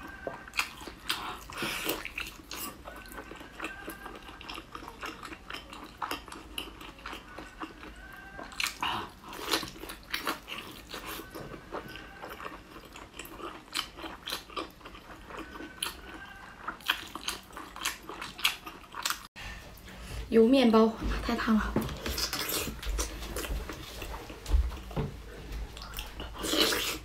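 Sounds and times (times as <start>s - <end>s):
person chewing and sucking: 0.0s - 19.3s, 22.0s - 24.4s, 25.7s - 27.0s.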